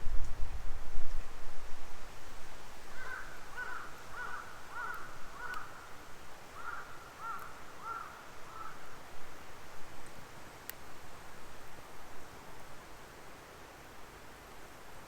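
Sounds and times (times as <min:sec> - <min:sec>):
distant bird calling: 0:03.0 - 0:05.9, 0:06.6 - 0:08.8.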